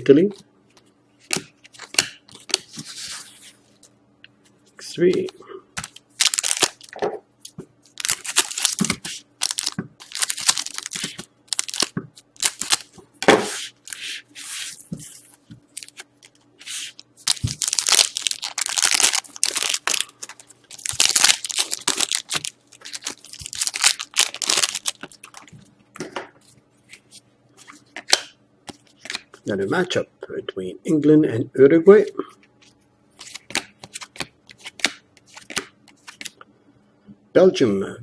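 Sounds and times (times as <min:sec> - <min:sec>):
foil wrappers tearing and crinkling: 0:05.8 - 0:06.9, 0:07.9 - 0:12.9, 0:15.7 - 0:25.5.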